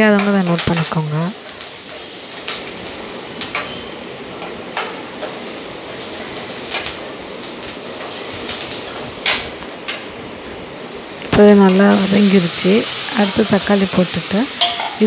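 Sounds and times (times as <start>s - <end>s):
vegetables sizzling in oil: 0.0s - 15.0s
metal ladle scraping pan: 14.6s - 15.0s.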